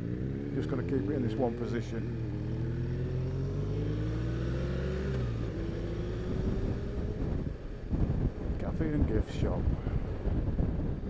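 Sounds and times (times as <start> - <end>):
motorcycle engine accelerating: 0.0 - 8.3.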